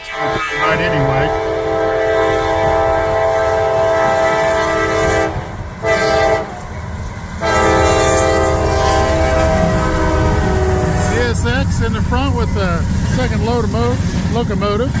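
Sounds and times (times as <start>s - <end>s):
train air horn blasts: 0.0s - 11.6s
low rumble of train: 0.0s - 15.0s.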